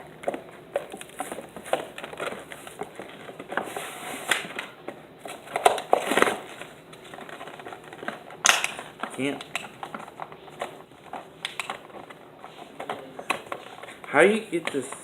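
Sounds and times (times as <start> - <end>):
loud packaging rustle: 0.3 - 15.0
packaging crinkling and clicking: 4.3 - 15.0.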